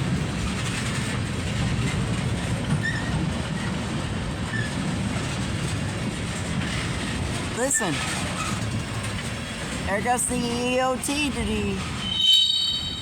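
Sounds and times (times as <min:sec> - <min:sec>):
train wheels rumbling and clattering: 0:00.0 - 0:13.0
faint wheel squeals: 0:12.0 - 0:13.0.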